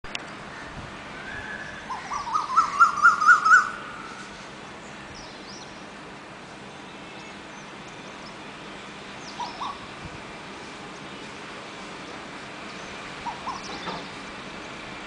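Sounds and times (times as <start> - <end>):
weaver birds chattering: 4.4 - 10.0, 10.6 - 14.8.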